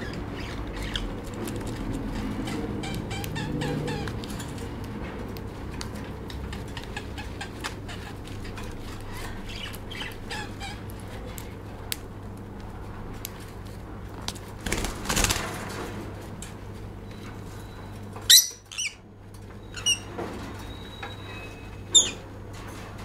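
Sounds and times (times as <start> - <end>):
lovebird chirping: 18.3 - 19.0.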